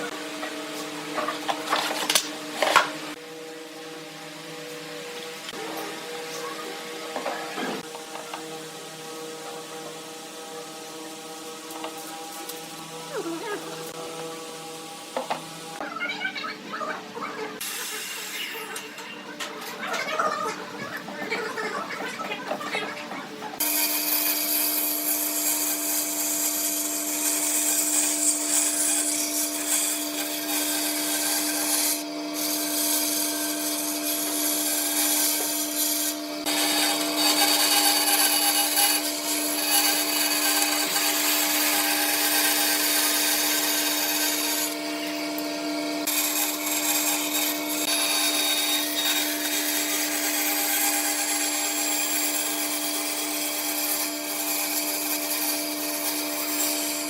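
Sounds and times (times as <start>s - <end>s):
power tool motor hum: 23.6s - 57.0s
tool rasping wood: 23.6s - 57.0s.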